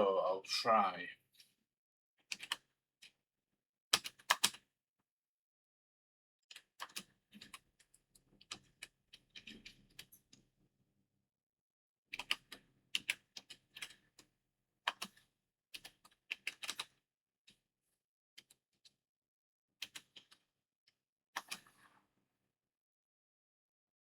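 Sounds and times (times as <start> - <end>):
typing on computer keyboard: 12.1 - 13.9.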